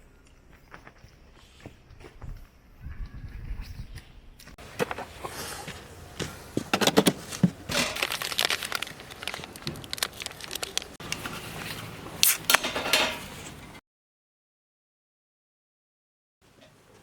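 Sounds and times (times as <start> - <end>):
crinkling rustling handling: 4.6 - 12.0
sharp clicks and crackles: 7.8 - 11.3.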